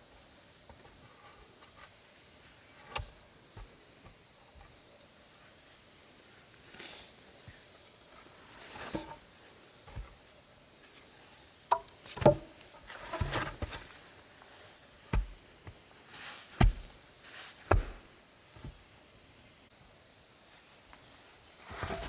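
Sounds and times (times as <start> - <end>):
scraping and rustling: 8.6 - 9.2, 21.6 - 22.0.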